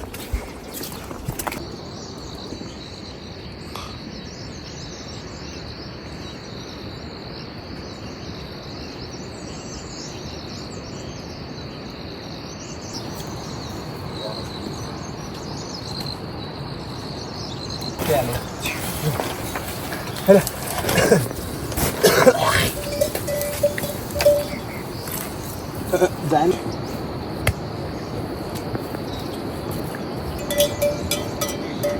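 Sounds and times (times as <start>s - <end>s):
faint chirps: 0.0s - 31.9s
insect trilling: 13.0s - 28.4s.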